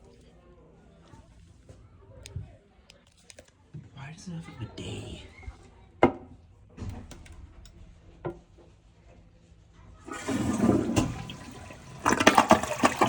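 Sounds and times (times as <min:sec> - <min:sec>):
toilet flush click: 0:10.1 - 0:13.0
water rushing into toilet bowl: 0:10.1 - 0:13.0.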